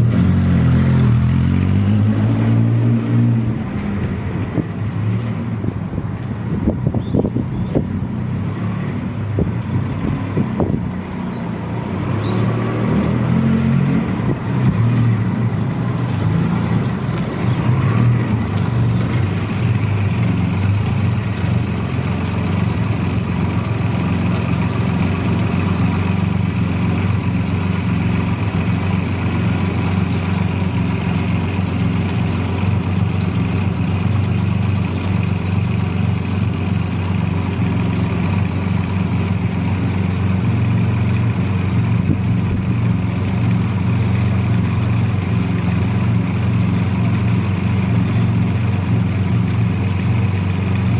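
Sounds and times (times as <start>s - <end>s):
motorcycle engine idling: 18.2s - 50.9s.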